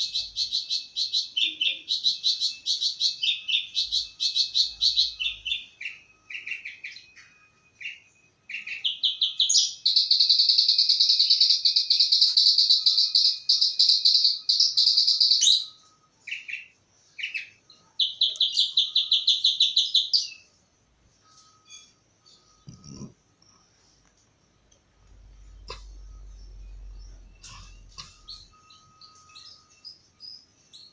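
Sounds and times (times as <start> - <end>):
bird singing fast trills: 0.0 - 20.6, 25.4 - 30.9.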